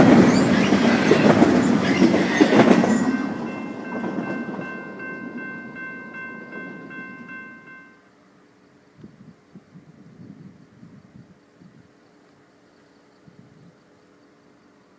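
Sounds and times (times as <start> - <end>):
train rumble and wheel clatter: 0.0 - 8.0
high ringing tone: 0.1 - 8.1.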